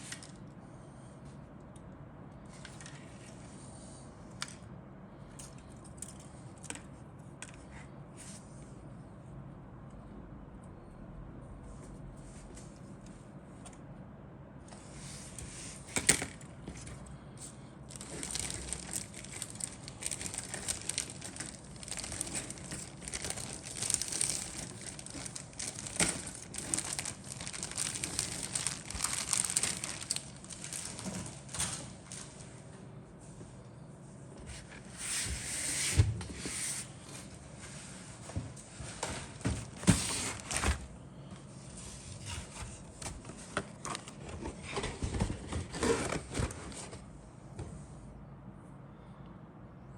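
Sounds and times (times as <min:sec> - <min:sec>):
plastic bags crinkling: 0:17.9 - 0:32.4, 0:39.3 - 0:40.8.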